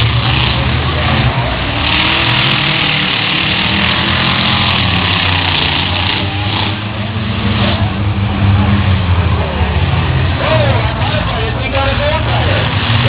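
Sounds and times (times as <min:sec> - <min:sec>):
continuous rushing noise: 0:00.0 - 0:13.0
truck engine running: 0:00.0 - 0:13.0.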